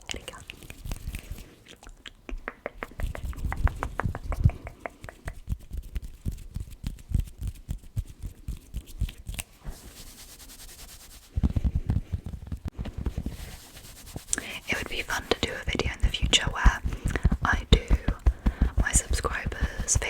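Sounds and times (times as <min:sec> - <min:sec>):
fingertip tapping: 0:02.3 - 0:05.6, 0:15.2 - 0:20.0
brushing hiss: 0:13.2 - 0:20.0.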